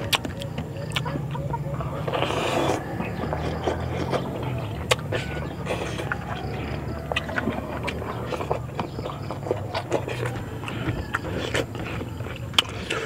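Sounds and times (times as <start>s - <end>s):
wet mouth clicks: 0.0s - 6.5s
chewing and lip-smacking: 0.0s - 13.0s.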